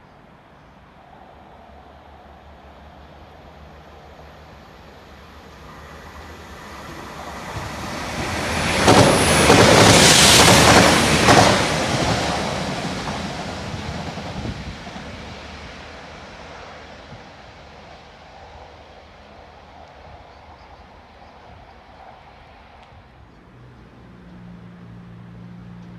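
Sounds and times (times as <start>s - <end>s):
train passing: 0.0s - 25.9s
sharp clack of train: 5.4s - 17.4s.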